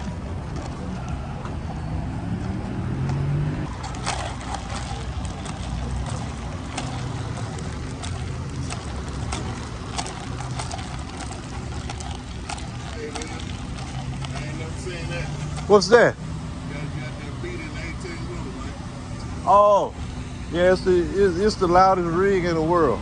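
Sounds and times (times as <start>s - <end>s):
rattling clicks: 3.7s - 14.8s.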